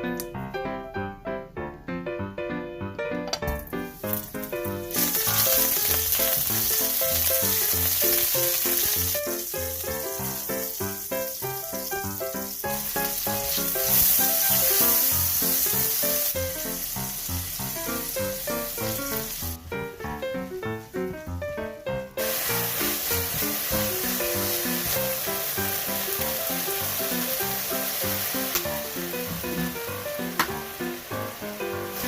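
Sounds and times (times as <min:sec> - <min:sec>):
food sizzling in a pan: 0:03.6 - 0:19.6, 0:22.2 - 0:32.0.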